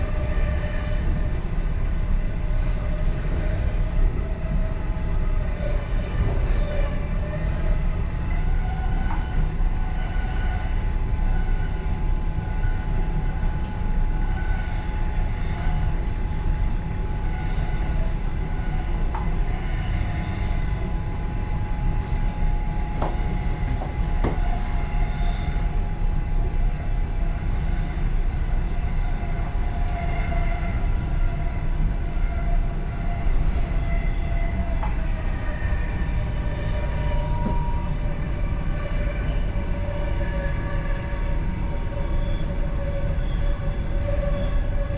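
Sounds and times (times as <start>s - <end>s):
train wheels rumbling on rail: 0.0s - 44.9s
steady whine: 7.8s - 40.3s.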